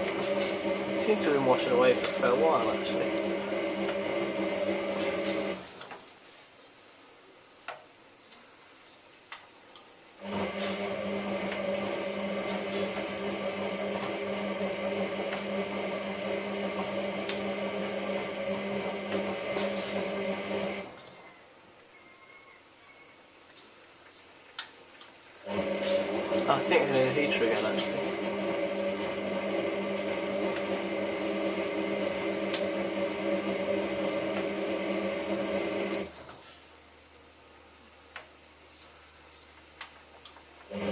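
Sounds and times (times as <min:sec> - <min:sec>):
washing machine drum humming: 0:00.0 - 0:05.6, 0:10.2 - 0:21.0, 0:25.5 - 0:36.1.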